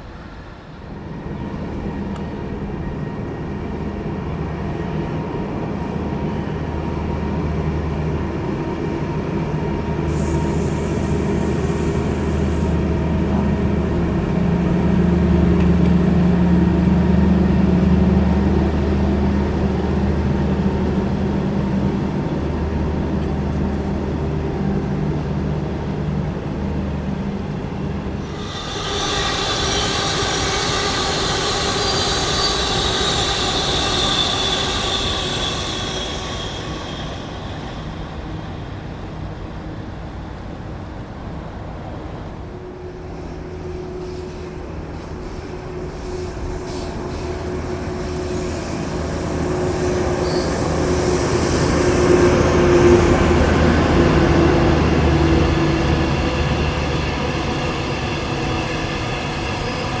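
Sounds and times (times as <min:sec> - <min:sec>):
train high whine: 0:00.0 - 1:00.0
train passing: 0:00.0 - 1:00.0
train motor hum: 0:05.8 - 0:40.5.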